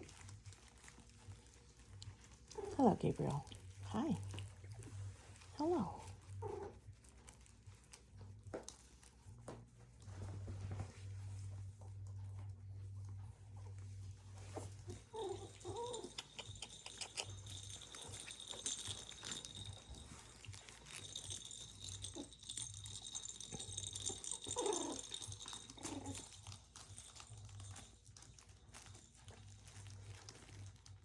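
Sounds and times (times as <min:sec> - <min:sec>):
paws and toys scuffling: 0:00.0 - 0:31.0
puppy vocal sounds: 0:14.4 - 0:29.8.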